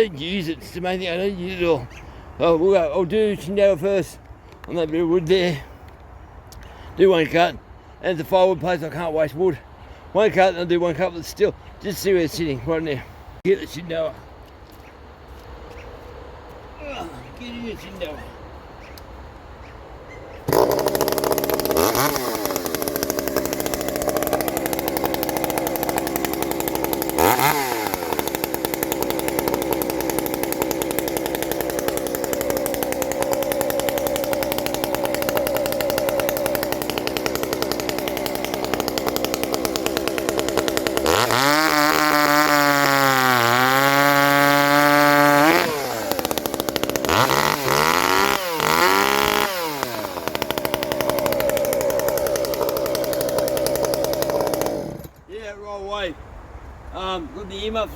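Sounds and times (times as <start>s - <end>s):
chainsaw revving: 20.5s - 55.2s.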